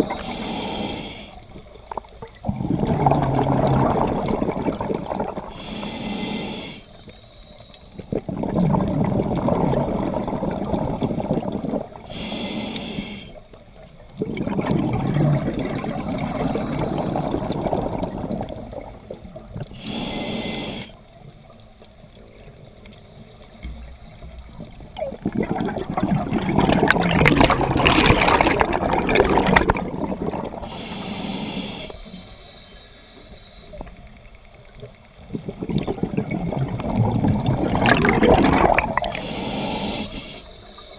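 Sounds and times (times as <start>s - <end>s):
scuba regulator breathing: 0.0s - 1.6s, 4.8s - 8.5s, 9.9s - 13.6s, 19.6s - 21.1s, 26.8s - 34.0s, 37.6s - 40.9s
bubbling exhalations: 2.0s - 5.7s, 8.0s - 12.2s, 14.2s - 20.0s, 24.8s - 31.0s, 35.3s - 39.3s.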